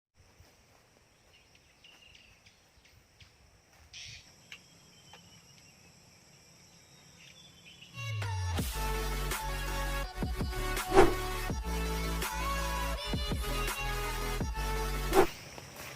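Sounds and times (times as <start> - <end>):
crickets trilling: 0.2 - 8.0, 14.6 - 15.9
faint bird chirps: 0.4 - 8.4
loud electronic music: 8.3 - 15.2.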